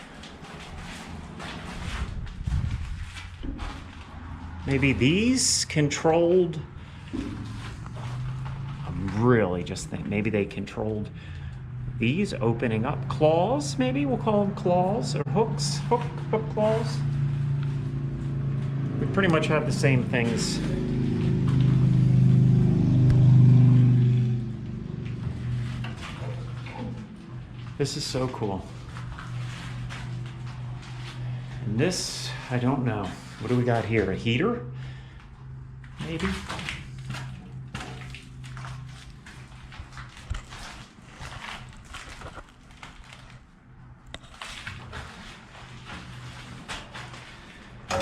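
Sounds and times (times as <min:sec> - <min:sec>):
soft rustling and scuffing: 0:00.0 - 0:05.1, 0:25.3 - 0:34.2, 0:44.3 - 0:47.8
vehicle engine drone: 0:00.0 - 0:48.0.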